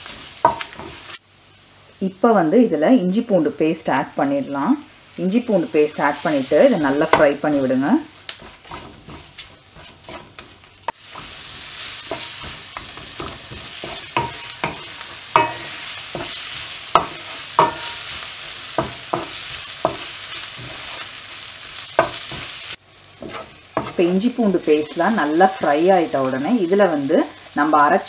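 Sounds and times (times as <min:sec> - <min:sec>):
onions sizzling in oil: 0:00.0 - 0:28.0
wooden spatula scraping a pan: 0:08.4 - 0:21.1, 0:23.2 - 0:24.2.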